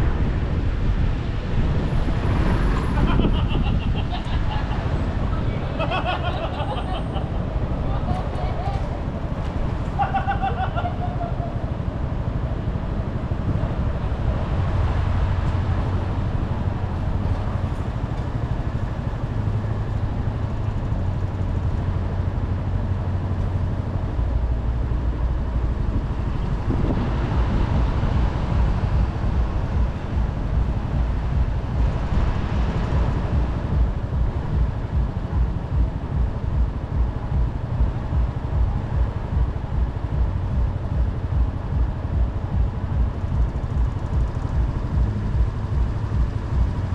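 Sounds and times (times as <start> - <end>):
road noise: 0.0 - 46.9
wind noise: 0.0 - 46.9
motorcycle engine running: 25.8 - 46.9.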